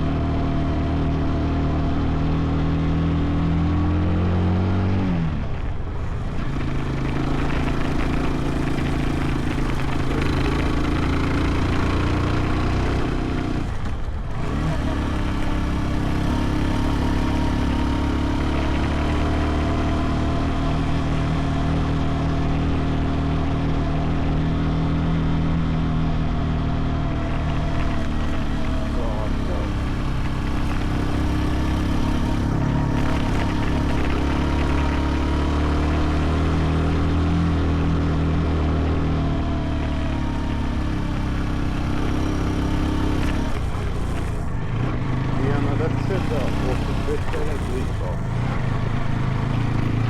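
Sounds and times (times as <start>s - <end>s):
motorcycle engine running: 0.0s - 50.0s
wind and road noise: 0.0s - 50.0s.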